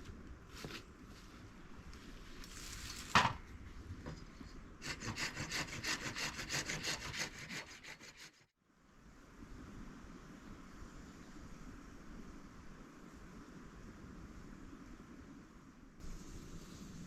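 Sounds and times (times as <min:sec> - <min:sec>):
saw cutting wood: 0:04.8 - 0:08.4.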